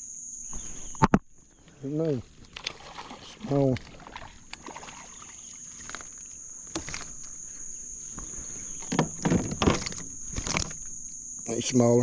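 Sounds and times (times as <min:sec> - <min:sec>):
insects droning: 0:00.0 - 0:12.0
knocks and rattles: 0:08.9 - 0:10.8.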